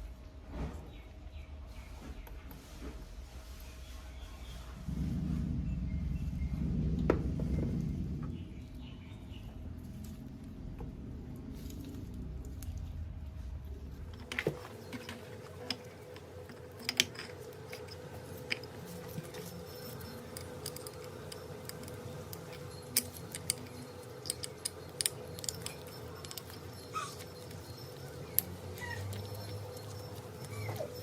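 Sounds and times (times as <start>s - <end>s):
faint steady hum: 0.0s - 31.0s
small metal parts clinking: 14.1s - 31.0s.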